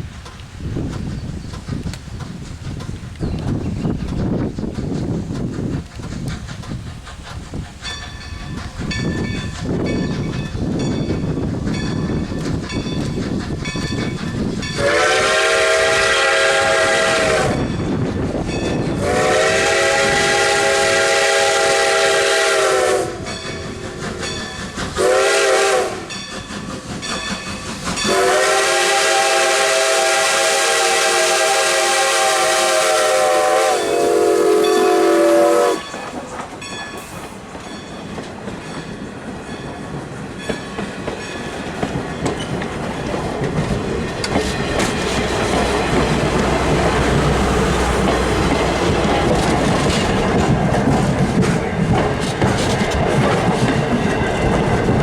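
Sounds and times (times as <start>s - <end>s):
train rumbling and clicking: 0.0s - 55.0s
steam locomotive whistle: 14.6s - 17.8s, 18.9s - 26.3s, 28.0s - 36.2s.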